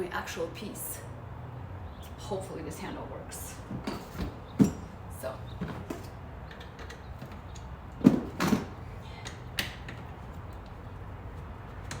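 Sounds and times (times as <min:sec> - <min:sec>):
loud handling knocks: 0:08.0 - 0:08.8.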